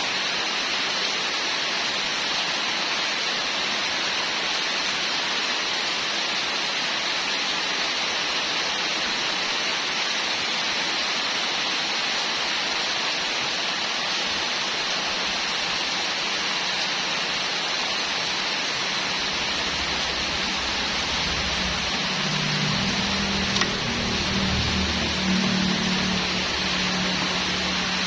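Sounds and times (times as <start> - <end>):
steady hiss: 0.0 - 28.0
low hum: 18.9 - 28.0.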